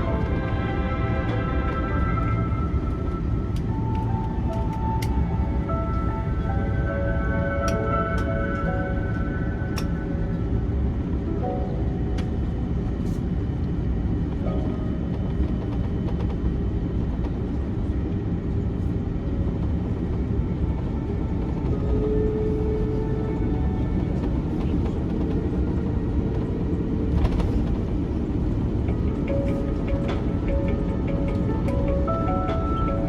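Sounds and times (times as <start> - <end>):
idling jet engines rumble: 0.0 - 33.0.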